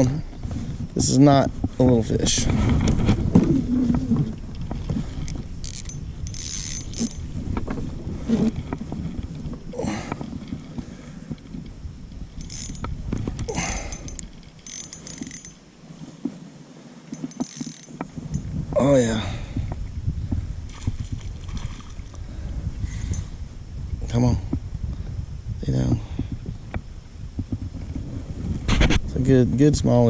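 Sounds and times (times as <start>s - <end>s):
fishing reel clicking: 5.1s - 7.3s, 12.1s - 15.7s, 17.1s - 18.4s.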